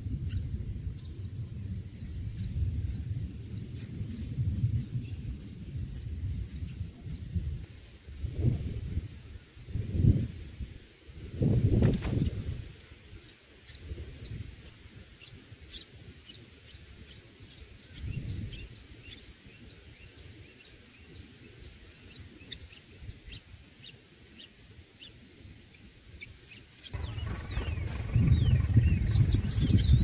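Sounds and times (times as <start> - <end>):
small birds chirping: 0.0 - 8.7, 11.5 - 30.0
low rumble: 27.0 - 30.0.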